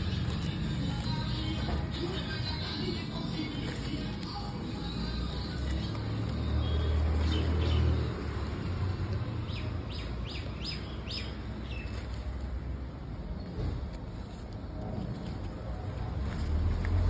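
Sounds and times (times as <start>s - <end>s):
bird chirping: 9.4s - 12.1s.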